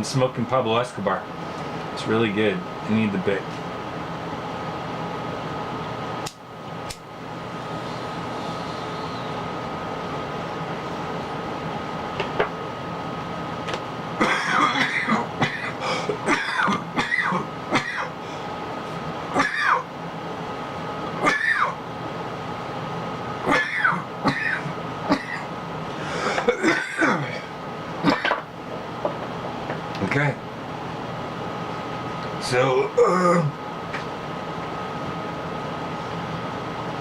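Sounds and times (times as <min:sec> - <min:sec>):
steady background hum: 0:00.0 - 0:37.0
faint high whine: 0:07.2 - 0:11.8
man coughing: 0:14.2 - 0:18.2, 0:19.3 - 0:19.9, 0:21.2 - 0:21.8, 0:23.5 - 0:25.5, 0:26.2 - 0:28.4.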